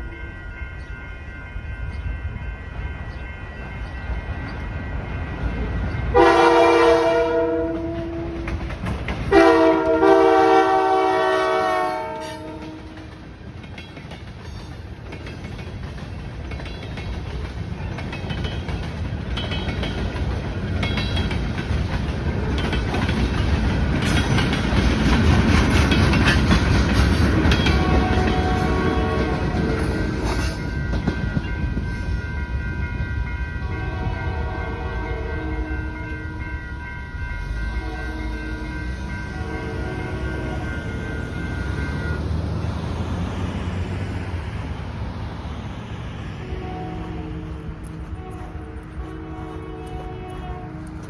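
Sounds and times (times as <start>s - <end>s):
train horn blasts: 6.1s - 8.6s, 9.3s - 13.2s, 27.3s - 30.3s, 33.6s - 36.6s, 37.6s - 42.2s, 46.3s - 51.0s
train wheels clacking over rail joints: 6.2s - 10.5s, 11.2s - 33.0s.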